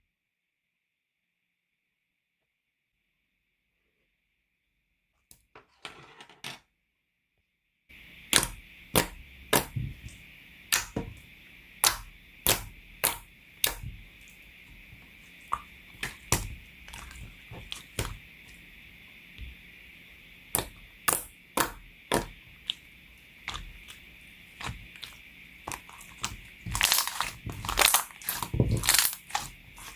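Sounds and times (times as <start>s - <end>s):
faint steady hiss: 7.9s - 29.9s.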